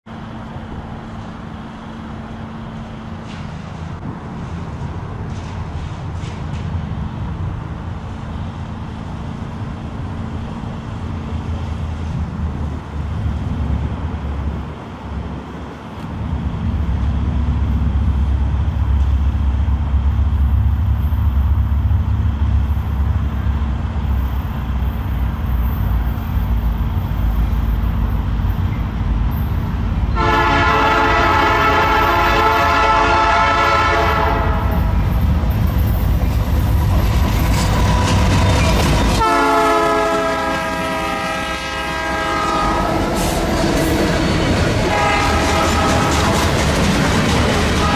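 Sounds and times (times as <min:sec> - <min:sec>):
diesel locomotive engine rumble: 0:00.1 - 0:47.9
locomotive air horn blast: 0:30.1 - 0:34.9, 0:39.2 - 0:43.5, 0:44.9 - 0:46.4.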